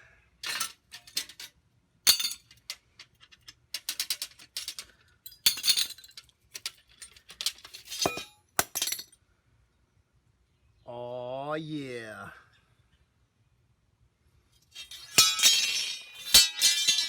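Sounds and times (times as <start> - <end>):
steel parts clanking: 0.4 - 1.5, 2.1 - 9.0, 14.7 - 17.0.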